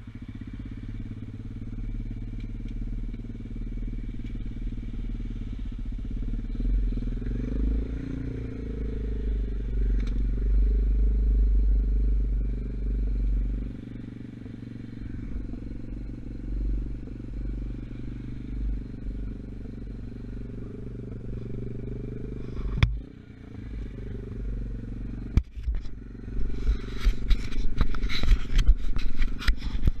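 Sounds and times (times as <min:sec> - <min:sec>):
dirt bike engine running: 0:00.0 - 0:30.0
rough crackling and scraping: 0:11.6 - 0:24.5, 0:25.1 - 0:30.0.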